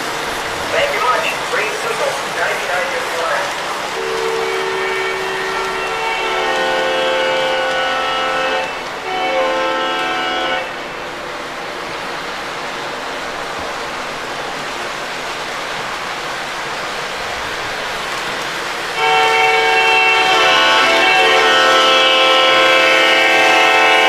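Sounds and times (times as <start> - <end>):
model train running on track: 0.0 - 24.0
model train multi-chime horn: 0.8 - 10.8, 19.0 - 24.0.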